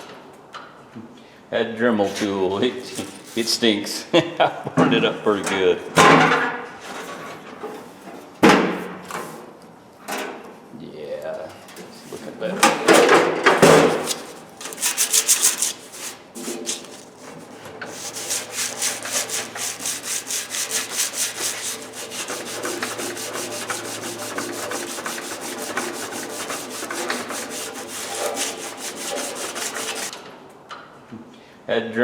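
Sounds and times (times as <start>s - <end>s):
hand sanding steel: 13.9s - 30.2s.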